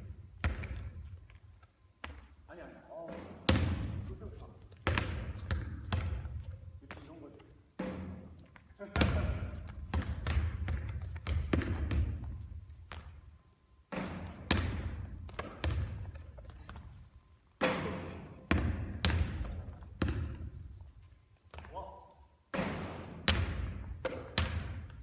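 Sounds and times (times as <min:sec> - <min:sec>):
basketball bouncing on hard court: 0:00.0 - 0:01.2, 0:02.0 - 0:02.3, 0:03.1 - 0:04.1, 0:04.7 - 0:07.2, 0:07.8 - 0:13.2, 0:13.9 - 0:17.0, 0:17.6 - 0:20.9, 0:22.5 - 0:25.0.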